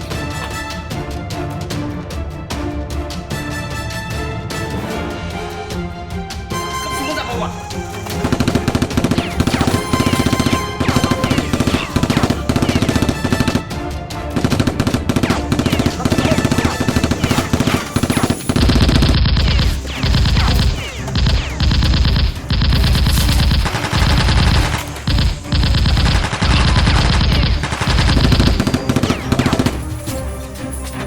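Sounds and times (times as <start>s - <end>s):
music: 0.0s - 31.0s
automatic gunfire: 8.1s - 13.6s, 14.4s - 30.0s.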